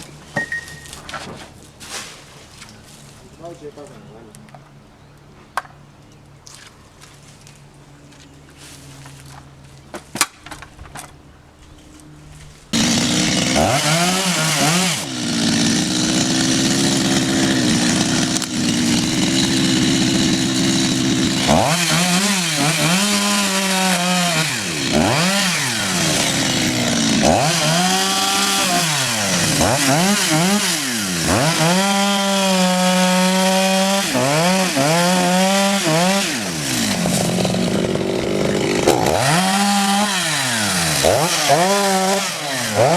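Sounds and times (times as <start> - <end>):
chainsaw cutting wood: 12.7 - 42.9.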